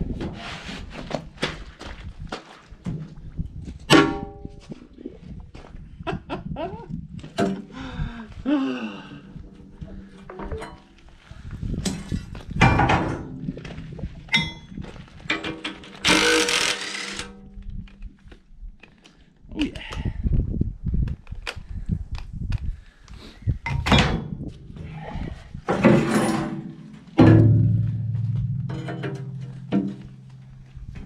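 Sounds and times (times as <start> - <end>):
metal clanks and knocks: 10.2 - 11.0, 11.8 - 13.7, 14.3 - 17.4, 23.7 - 24.4, 25.7 - 30.6.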